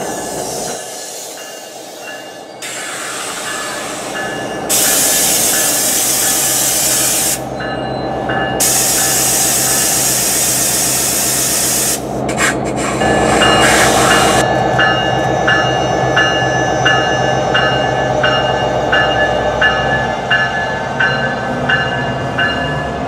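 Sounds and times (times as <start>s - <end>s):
air hissing: 0.0s - 7.5s, 8.6s - 14.4s
train equipment humming: 0.0s - 23.0s.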